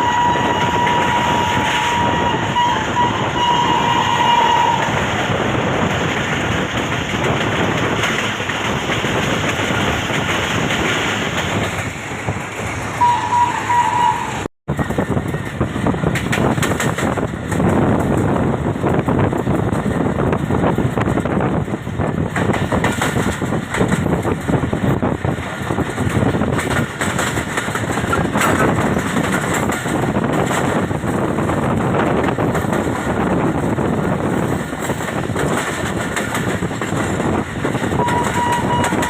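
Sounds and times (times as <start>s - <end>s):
train horn: 0.0s - 5.1s, 13.0s - 14.5s, 38.0s - 39.0s
train running at high speed: 0.0s - 39.0s.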